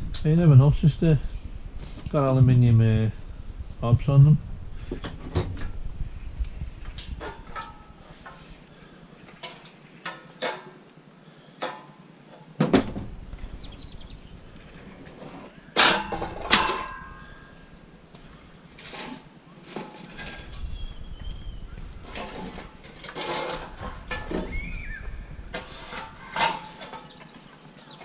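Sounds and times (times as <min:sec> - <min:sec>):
scrap metal knocks and clanks: 0:07.0 - 0:08.5, 0:15.0 - 0:17.6, 0:22.0 - 0:24.6, 0:25.4 - 0:28.0
metal clatters: 0:15.0 - 0:17.6, 0:22.0 - 0:24.6, 0:25.4 - 0:28.0.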